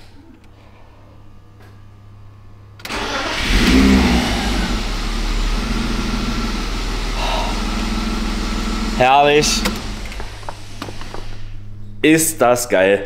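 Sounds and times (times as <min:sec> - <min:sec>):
starter cranking engine: 0:02.9 - 0:11.2
car engine idling: 0:02.9 - 0:11.6.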